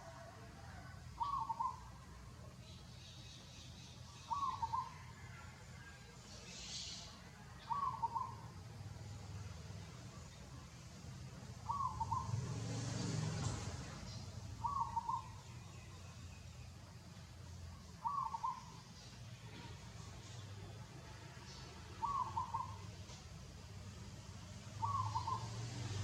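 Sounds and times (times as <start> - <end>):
bird calling: 1.2 - 2.0, 4.1 - 5.3, 6.5 - 8.5, 11.6 - 12.4, 14.1 - 16.0, 17.9 - 19.7, 21.9 - 23.2, 24.8 - 25.9.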